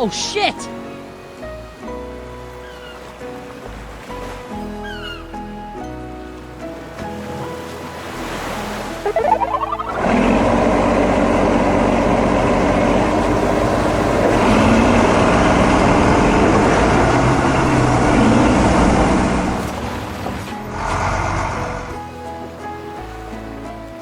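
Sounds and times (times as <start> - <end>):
short rising sweep: 9.0 - 12.6
heavy vehicle engine revving: 9.2 - 22.0.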